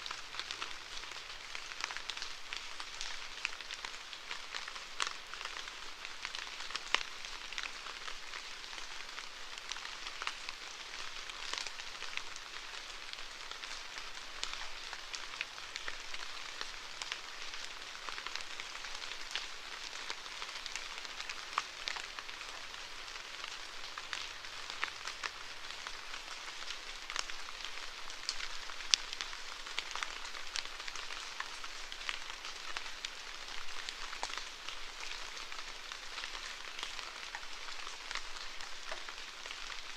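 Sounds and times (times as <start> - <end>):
rain on hard surface: 0.0 - 39.9.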